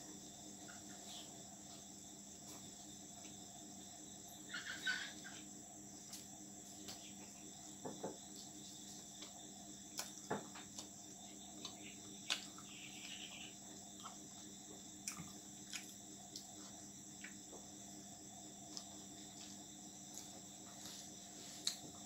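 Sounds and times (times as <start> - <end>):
chewing crunches and mouth clicks: 9.0 - 13.2, 13.9 - 17.4.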